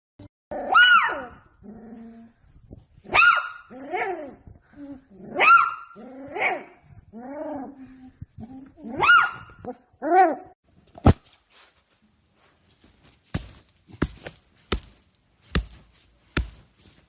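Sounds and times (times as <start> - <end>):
dog barking and yelping: 0.5 - 1.6, 3.1 - 4.4, 5.3 - 6.8, 8.8 - 10.6.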